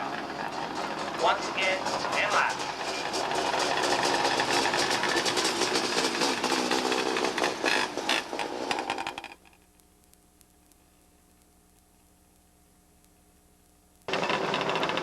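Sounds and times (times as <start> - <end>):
small race car engines buzzing: 0.0 - 9.4, 14.1 - 15.0
faint steady hum: 9.3 - 14.1.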